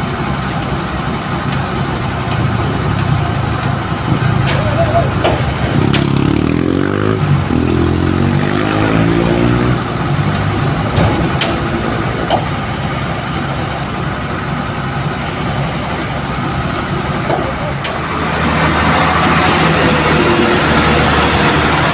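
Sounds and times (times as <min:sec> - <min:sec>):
vehicle engine and road noise: 0:00.0 - 0:21.9.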